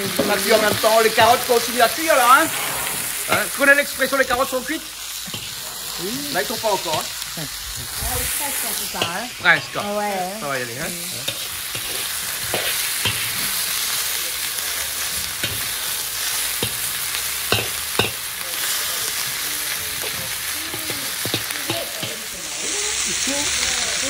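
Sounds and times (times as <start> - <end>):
spatula scraping and knocking wok: 0.0 - 23.0
vegetables sizzling in hot oil: 0.0 - 24.0.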